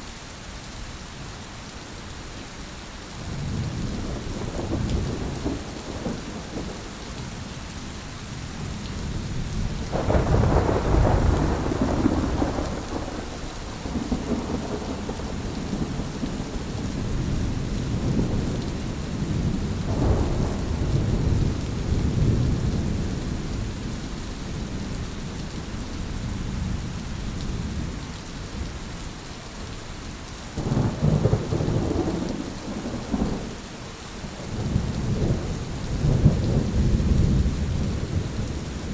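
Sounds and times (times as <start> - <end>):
steady rain: 0.0 - 38.9
rolling thunder: 3.3 - 7.5, 8.5 - 25.0, 30.6 - 33.6, 34.3 - 38.9.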